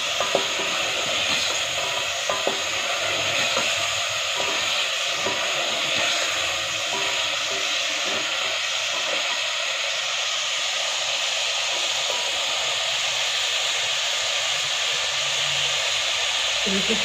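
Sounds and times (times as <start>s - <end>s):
wooden spatula stirring: 0.0s - 9.4s
chicken sizzling in hot oil: 0.0s - 17.0s.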